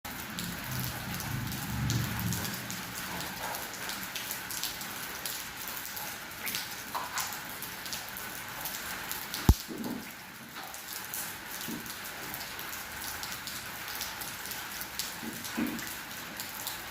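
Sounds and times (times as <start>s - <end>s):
raindrops tapping on surface: 0.1s - 16.9s
steady rain falling: 0.1s - 16.9s
low rumble: 0.4s - 3.0s.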